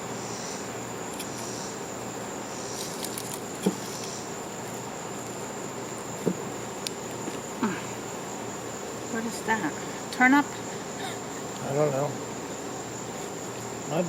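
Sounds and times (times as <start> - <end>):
insects trilling: 0.0 - 14.0
lower insect chirring: 0.0 - 14.0
soft knocks: 6.2 - 6.5.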